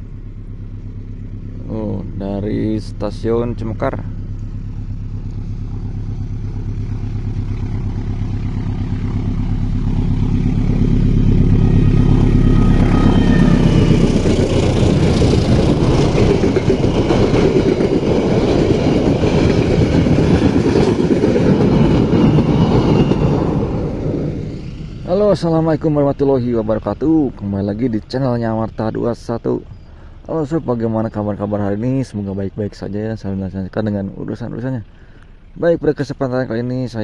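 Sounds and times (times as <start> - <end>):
diesel locomotive engine: 0.0 - 37.0
train wheels on rail: 7.8 - 27.4.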